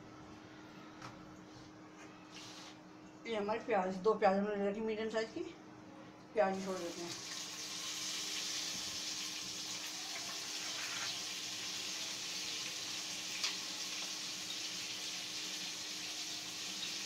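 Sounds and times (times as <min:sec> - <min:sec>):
onions sizzling in hot oil: 0:06.6 - 0:17.0.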